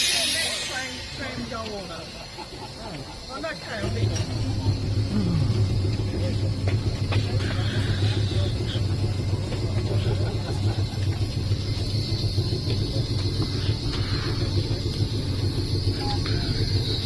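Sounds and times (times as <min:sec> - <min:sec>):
faint high whine: 0:00.0 - 0:02.5
tram motor and wheel rumble: 0:00.0 - 0:17.0.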